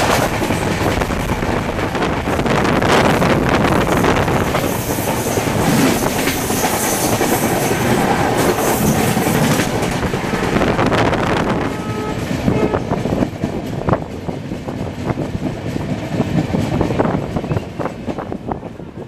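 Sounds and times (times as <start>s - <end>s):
wheels clattering over rail joints: 0.0s - 11.2s
train wheel and track noise: 0.0s - 19.0s.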